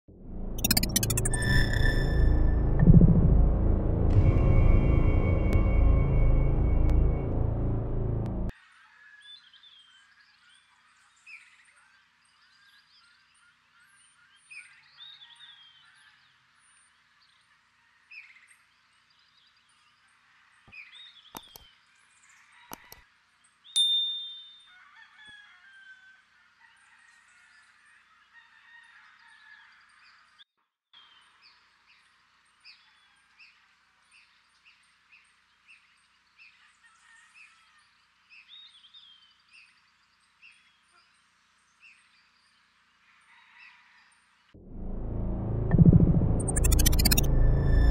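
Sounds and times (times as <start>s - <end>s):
short clicks: 21.4s - 21.7s
songbirds chirping: 31.0s - 43.0s.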